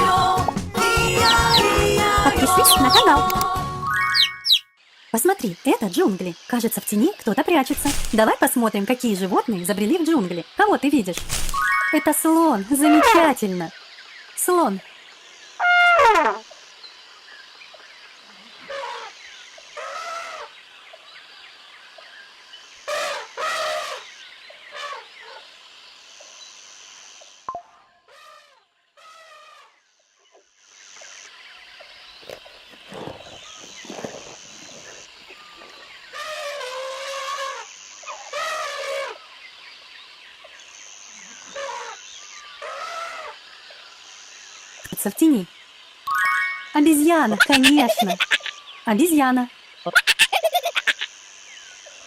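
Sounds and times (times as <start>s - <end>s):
elephant trumpeting: 15.6s - 16.4s
faint high steady tone: 46.1s - 47.6s.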